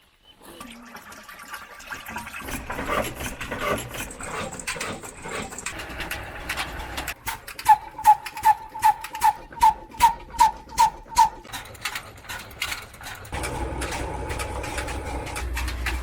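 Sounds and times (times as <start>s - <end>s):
diesel engine knocking: 10.7s - 16.0s.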